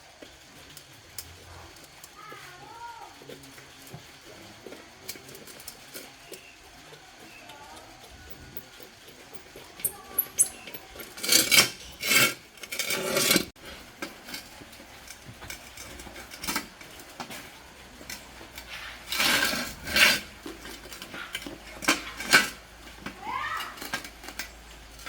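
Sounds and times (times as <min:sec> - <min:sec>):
metal clattering and scraping: 0:08.2 - 0:25.0.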